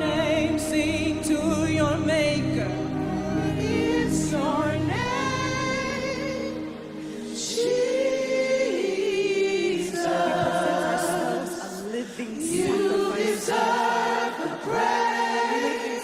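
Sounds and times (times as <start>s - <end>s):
low bass: 0.0s - 7.0s
group singing worship song: 0.0s - 16.0s.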